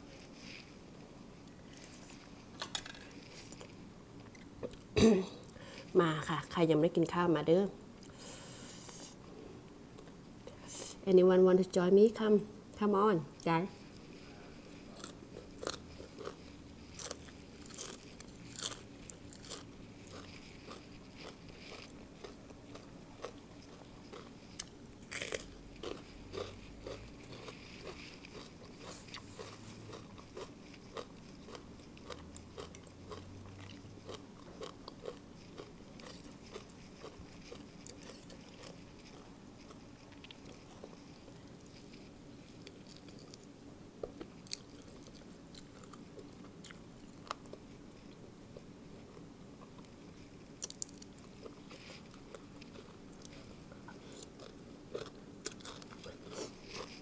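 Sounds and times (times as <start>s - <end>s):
person chewing crunchy food: 14.0s - 57.0s.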